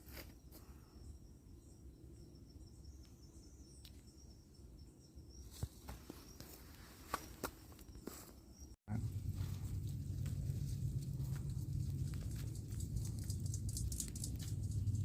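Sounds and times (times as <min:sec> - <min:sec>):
high insect tone: 0:00.0 - 0:06.7
low rumble: 0:08.9 - 0:15.0.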